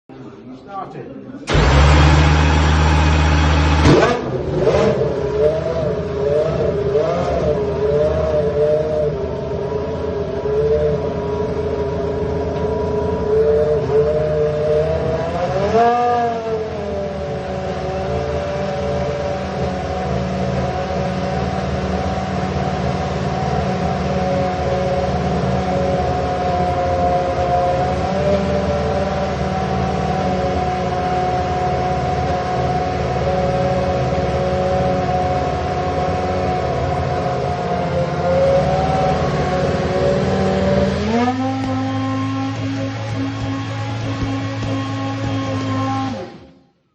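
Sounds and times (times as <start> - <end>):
engine throttle blip: 1.5 - 4.8
car engine idling: 1.5 - 15.5, 16.3 - 46.2.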